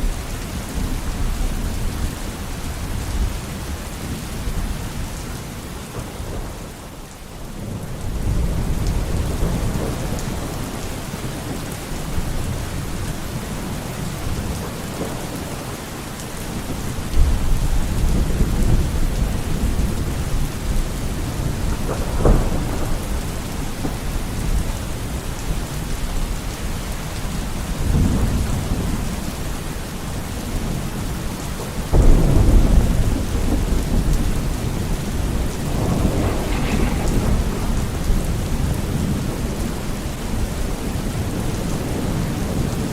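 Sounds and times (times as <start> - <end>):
steady rain: 0.0 - 42.9
thunder crack: 31.9 - 40.8
thunder rumbling: 31.9 - 42.9.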